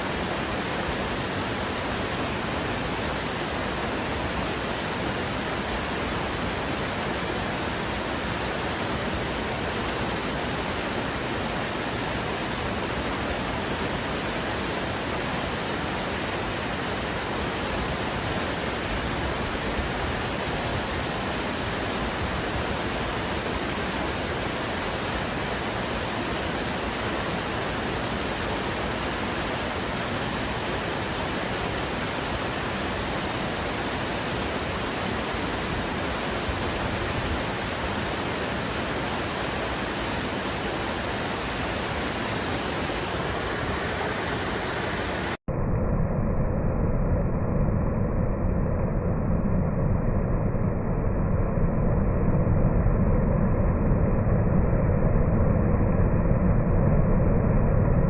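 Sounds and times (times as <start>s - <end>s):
rushing water: 0.0s - 45.4s.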